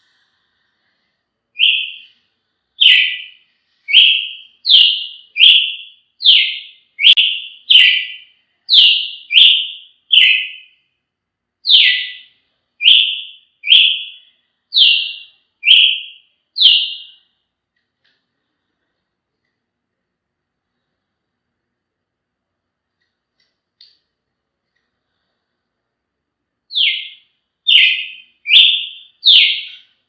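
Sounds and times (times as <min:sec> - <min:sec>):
bird singing whistled notes: 0:01.6 - 0:02.2, 0:02.8 - 0:10.8, 0:11.6 - 0:17.3, 0:26.7 - 0:30.0.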